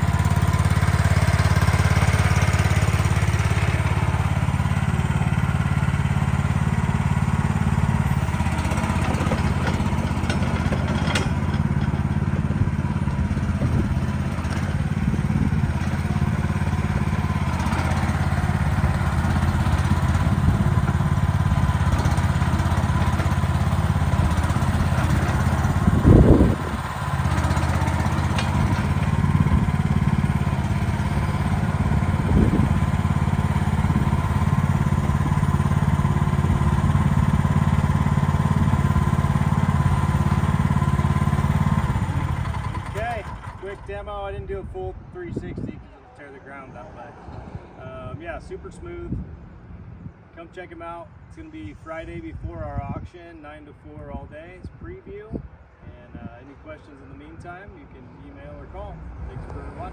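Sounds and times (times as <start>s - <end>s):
mini excavator engine running: 0.0s - 44.9s
loud clunk: 8.9s - 12.6s, 28.1s - 29.4s.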